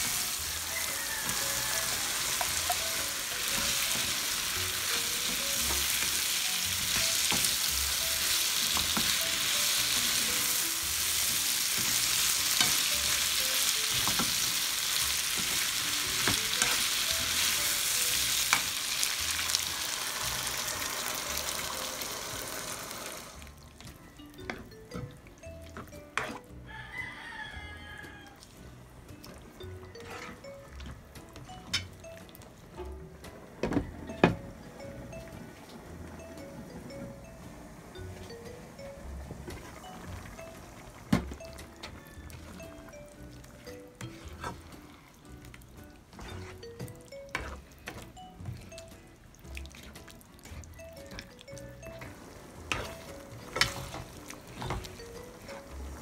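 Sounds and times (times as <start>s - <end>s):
food sizzling in hot oil: 0.0s - 23.6s, 48.3s - 56.0s.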